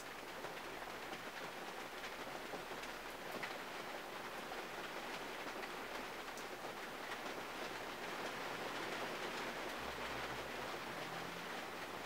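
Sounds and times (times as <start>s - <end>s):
rain on car roof: 0.0s - 12.0s.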